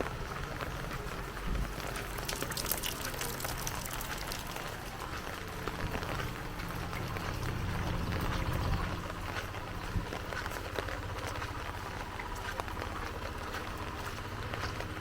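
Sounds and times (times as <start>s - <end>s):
low rumble: 5.0s - 10.2s.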